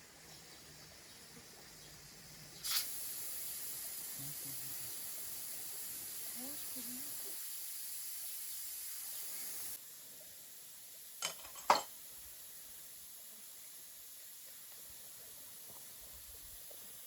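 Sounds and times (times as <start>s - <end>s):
cooking sizzle: 0.0s - 17.0s.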